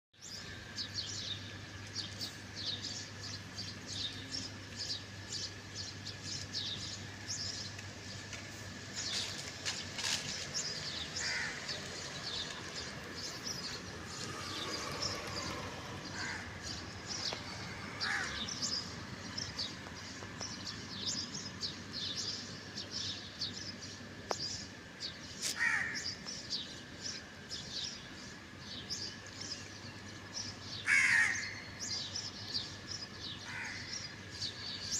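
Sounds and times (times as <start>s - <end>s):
small birds chirping: 0.2s - 34.9s
crows cawing: 11.2s - 11.7s, 16.1s - 16.6s, 17.6s - 18.7s, 25.5s - 26.1s, 30.8s - 31.7s, 33.4s - 34.0s.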